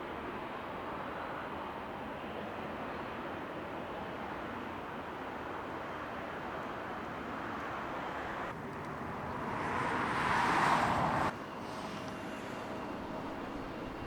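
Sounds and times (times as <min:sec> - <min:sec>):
jet airliner engines roaring: 0:00.0 - 0:14.0
distant jet rumble: 0:06.5 - 0:14.0.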